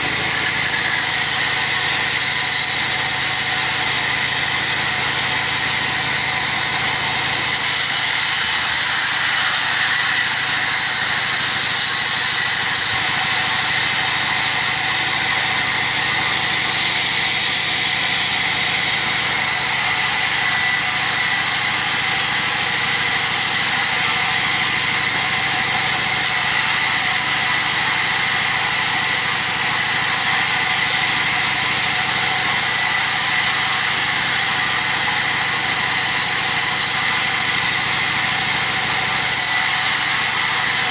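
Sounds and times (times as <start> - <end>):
workshop machine whining: 0.0 - 40.9.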